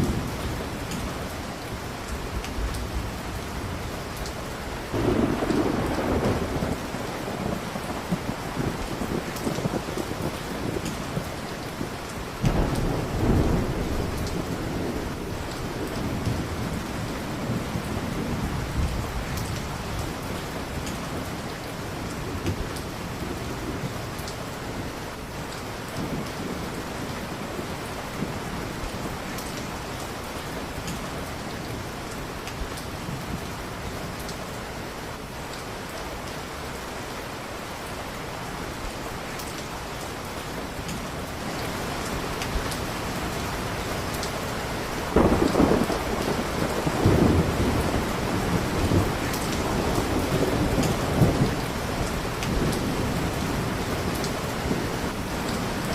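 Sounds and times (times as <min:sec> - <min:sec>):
heavy rain: 0:00.0 - 0:55.9
rumble of thunder: 0:04.9 - 0:24.9, 0:45.0 - 0:55.9.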